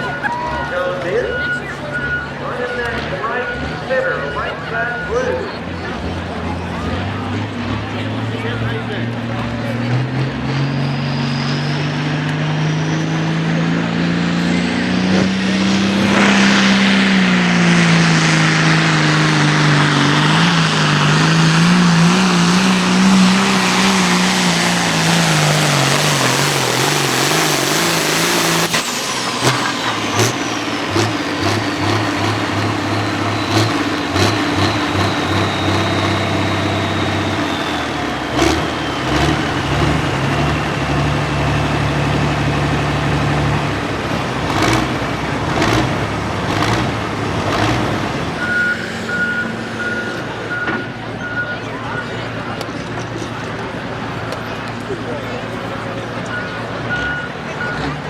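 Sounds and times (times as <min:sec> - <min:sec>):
diesel tractor engine under load: 0:00.0 - 0:58.0
turbocharger whine: 0:00.0 - 0:58.0
engine knocks: 0:17.7 - 0:48.5.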